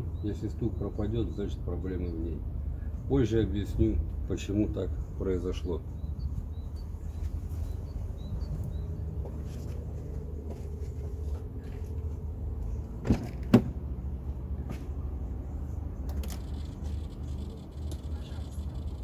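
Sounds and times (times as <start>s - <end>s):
diesel engine idling with knock: 8.0s - 15.0s.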